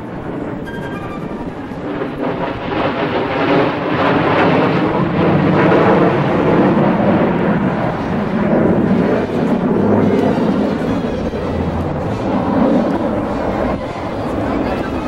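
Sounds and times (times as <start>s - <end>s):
jet aircraft flyby: 0.0s - 15.0s.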